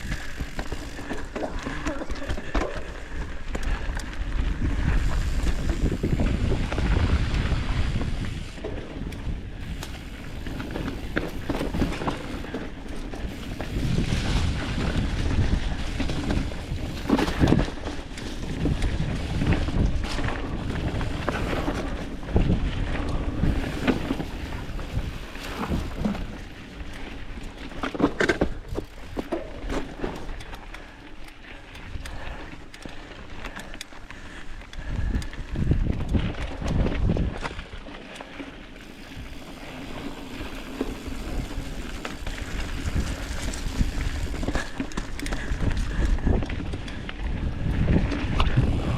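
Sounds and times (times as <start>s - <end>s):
bike knocks and rattles: 0.0s - 3.9s, 4.8s - 30.7s
wind buffeting microphone: 0.0s - 30.9s, 31.6s - 37.9s, 38.8s - 48.9s
bike tyres rumbling on dirt: 0.0s - 48.9s.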